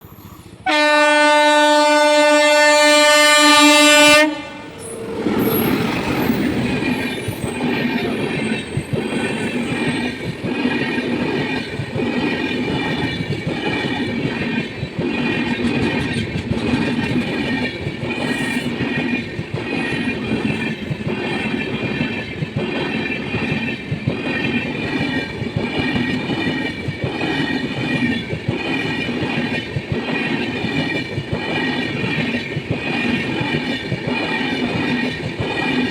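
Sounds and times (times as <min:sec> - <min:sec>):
locomotive horn blast: 0:00.6 - 0:04.8
train wheels clacking over rail joints: 0:04.8 - 0:35.9.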